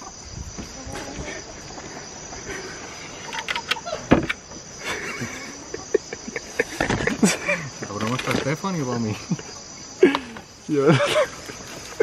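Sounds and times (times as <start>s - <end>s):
rustling in a coop: 0.0s - 8.9s, 9.6s - 12.0s
crickets chirring: 0.0s - 12.0s
knocks against wooden boards: 4.0s - 4.4s.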